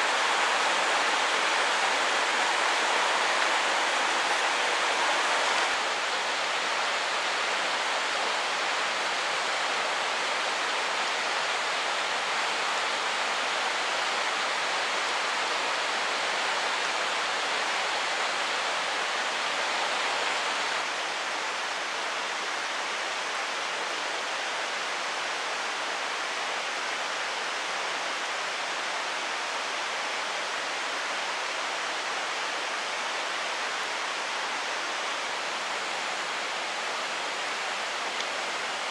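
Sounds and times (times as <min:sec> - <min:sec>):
mountain stream rushing over rocks: 0:00.0 - 0:38.9.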